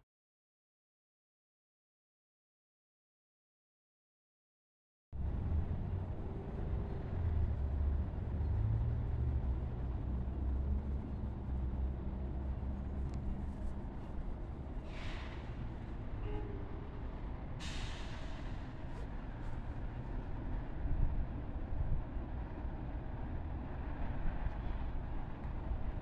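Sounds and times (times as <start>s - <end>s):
train rumbling: 5.2s - 26.0s
air hiss bursts: 17.6s - 18.6s.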